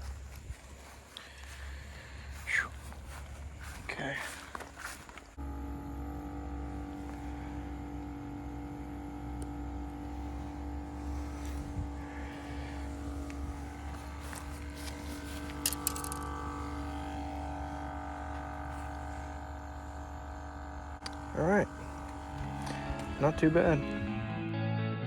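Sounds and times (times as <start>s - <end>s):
air pump humming: 0.0s - 24.4s.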